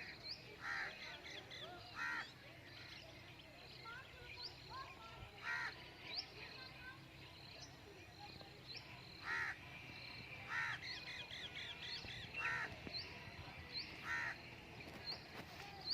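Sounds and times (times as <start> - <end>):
small birds chirping: 0.0 - 15.9
harsh caw-like bird calls: 0.6 - 1.0, 2.0 - 2.3, 5.4 - 5.8, 9.2 - 9.6, 10.5 - 10.9, 12.4 - 12.8, 14.0 - 14.4.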